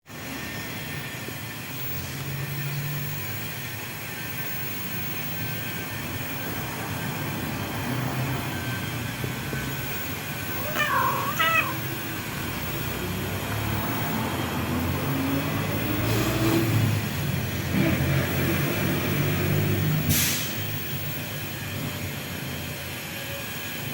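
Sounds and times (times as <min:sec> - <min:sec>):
cat meowing: 0:10.5 - 0:12.0.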